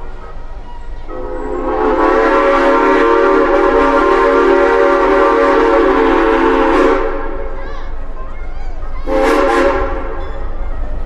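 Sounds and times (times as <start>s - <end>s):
steam train chime whistle: 1.1s - 7.2s, 9.1s - 10.5s.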